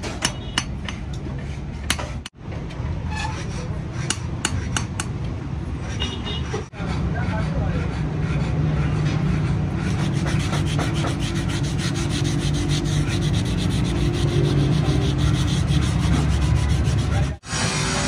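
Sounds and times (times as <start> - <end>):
knife blade being sanded by hand: 6.6 - 18.0.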